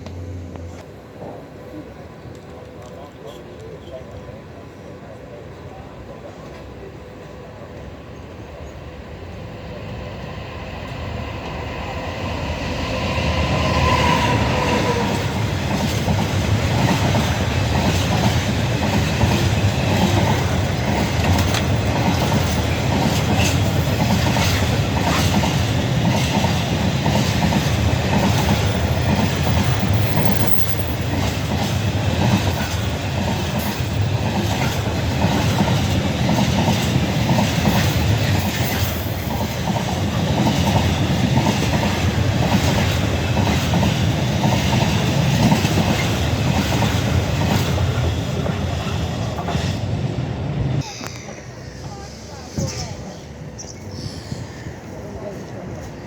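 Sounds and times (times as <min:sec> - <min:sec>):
locomotive whine: 0:00.0 - 0:03.0, 0:07.2 - 0:34.2.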